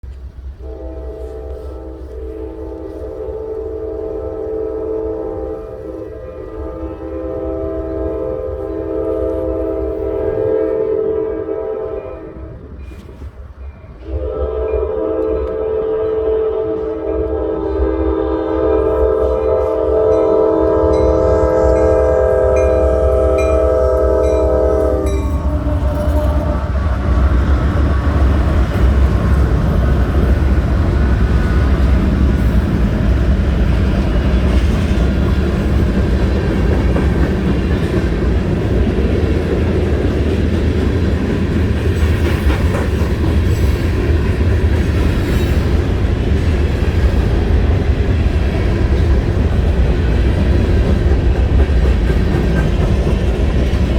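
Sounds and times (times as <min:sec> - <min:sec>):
diesel locomotives rumbling: 0:00.0 - 0:53.9
train air horn chord: 0:00.6 - 0:12.7, 0:14.0 - 0:27.2.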